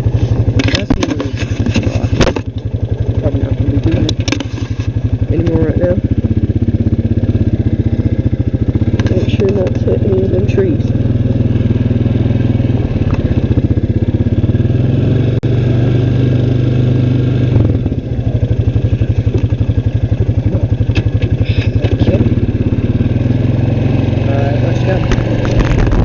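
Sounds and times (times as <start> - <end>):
small vehicle engine running: 0.0 - 26.0.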